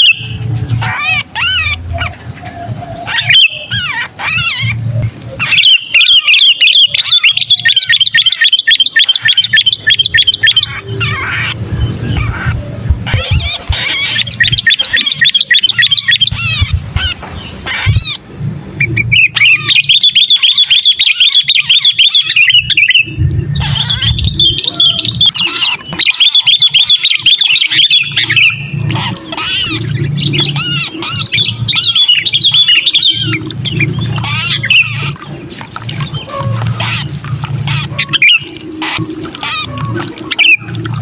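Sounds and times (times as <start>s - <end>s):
bulbul rapid chirping calls: 3.0s - 41.0s
low rumble: 10.5s - 19.4s.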